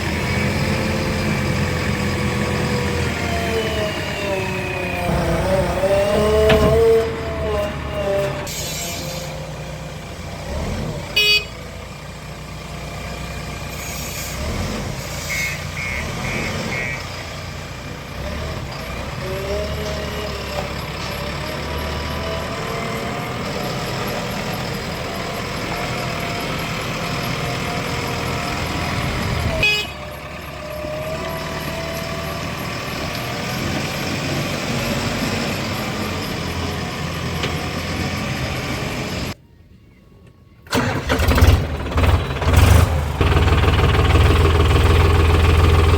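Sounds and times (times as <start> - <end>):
diesel engines running: 0.0 - 39.4, 40.1 - 45.9.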